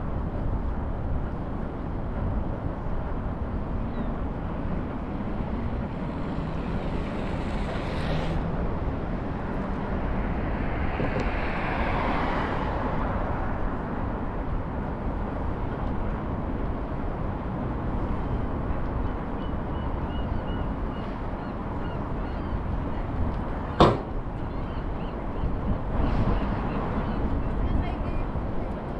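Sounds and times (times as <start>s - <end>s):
wind rush on microphone: 0.0s - 28.9s
street traffic noise: 4.3s - 28.9s.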